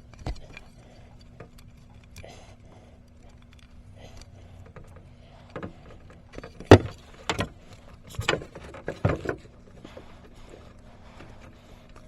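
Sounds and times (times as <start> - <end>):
handling knocks and scrapes: 5.6 - 10.1.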